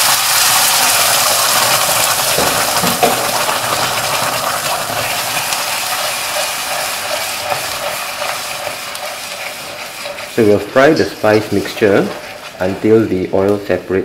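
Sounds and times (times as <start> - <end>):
paste sizzling in hot oil: 0.0 - 14.0
spatula scraping wok: 0.2 - 13.5
spatula knock: 2.3 - 3.4.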